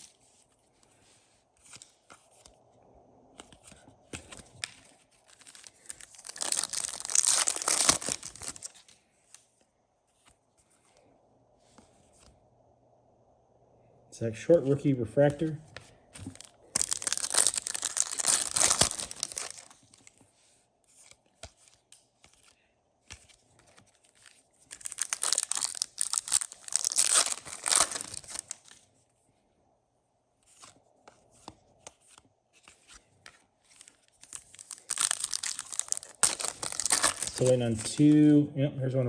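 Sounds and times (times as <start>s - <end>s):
cards rustling and clicking: 0.0s - 2.6s, 3.3s - 11.1s, 15.3s - 28.8s, 30.4s - 38.3s
foil wrapper crinkling and tearing: 5.2s - 8.9s, 16.3s - 20.1s, 24.0s - 28.7s, 34.2s - 38.1s.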